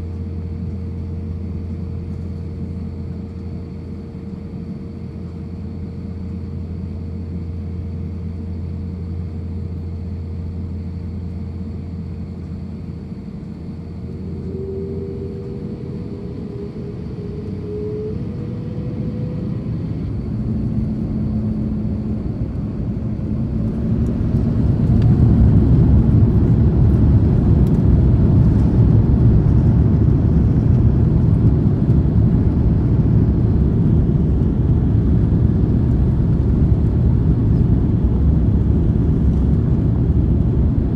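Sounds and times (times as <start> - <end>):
jet engine roar: 0.0 - 40.9
jet engines spooling up: 12.8 - 39.8.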